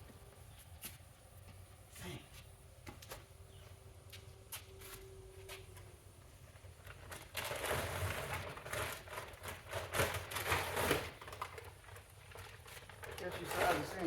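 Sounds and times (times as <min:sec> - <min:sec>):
packaging rustling and crinkling: 0:06.5 - 0:14.0.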